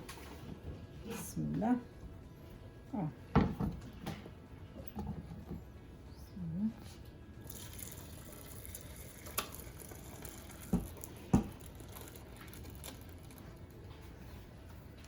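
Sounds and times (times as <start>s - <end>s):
liquid trickling through cloth: 7.4s - 13.6s.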